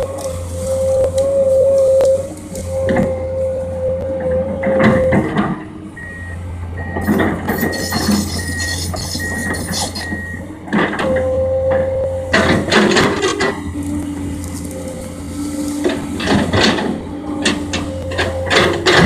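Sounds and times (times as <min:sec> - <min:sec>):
excavator diesel engine running: 0:00.0 - 0:19.0
clunks of working gear: 0:04.6 - 0:15.0
short beeps: 0:06.0 - 0:10.4.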